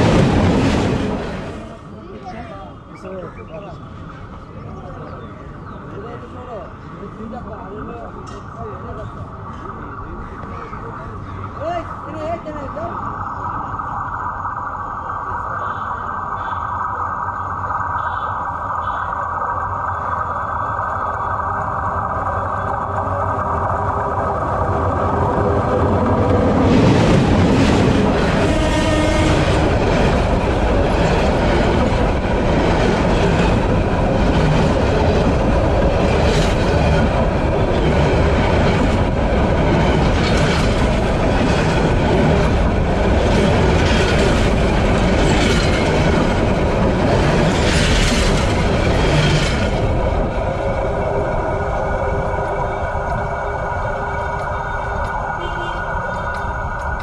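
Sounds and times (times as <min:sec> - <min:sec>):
diesel locomotive passing: 0:00.0 - 0:57.0
wheels clacking over rail joints: 0:20.5 - 0:57.0.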